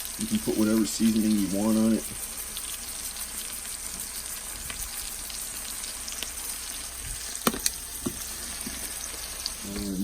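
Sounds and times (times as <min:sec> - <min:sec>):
chicken sizzling in oil: 0:00.0 - 0:10.0.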